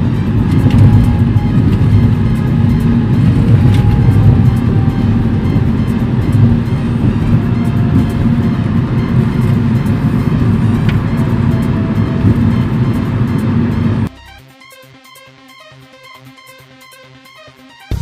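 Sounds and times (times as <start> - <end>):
car engine and road noise: 0.0 - 14.1
music playing: 0.0 - 18.0.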